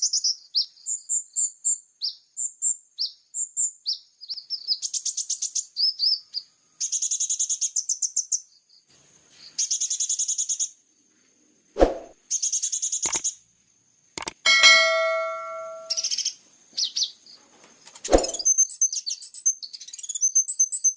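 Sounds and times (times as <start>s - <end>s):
sharp knocks: 14.2s - 16.0s
ringing metallic ding: 14.2s - 16.1s
bird singing rattling trills: 14.2s - 16.2s, 18.1s - 18.8s.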